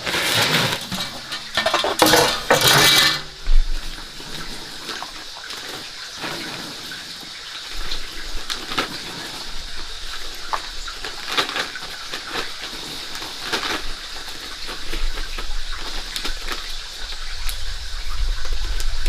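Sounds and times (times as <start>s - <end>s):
water splashing and pouring: 0.0s - 18.8s
light clinks and knocks: 0.7s - 3.5s.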